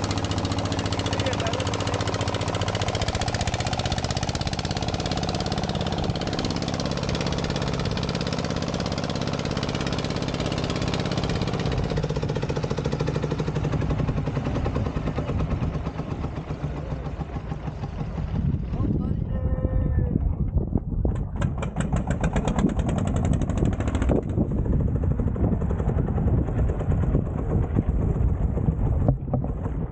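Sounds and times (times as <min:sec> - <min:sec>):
motorboat engine knocking: 0:00.0 - 0:29.9.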